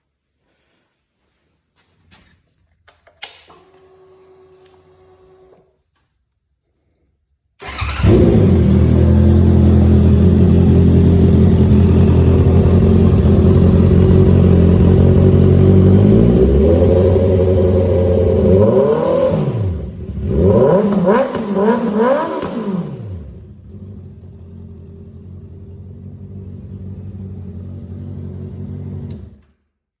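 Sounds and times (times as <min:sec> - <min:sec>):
motorcycle engine revving: 0:07.6 - 0:29.4
motorcycle engine starting: 0:07.6 - 0:29.7
motorcycle engine idling loud: 0:08.8 - 0:16.0.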